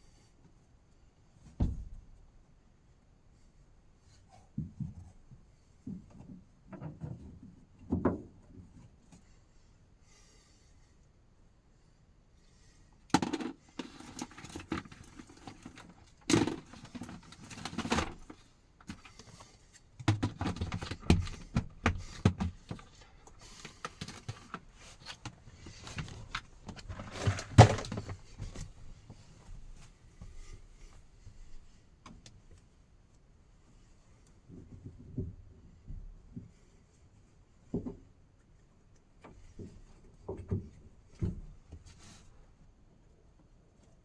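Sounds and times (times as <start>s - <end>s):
knocks and thuds: 1.6s - 2.0s
rustling of things handled: 13.4s - 32.8s.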